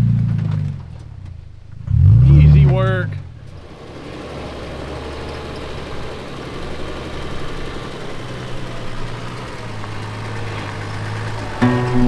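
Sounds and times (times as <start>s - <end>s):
engine running at low revs: 0.0s - 12.0s
music: 11.6s - 12.0s.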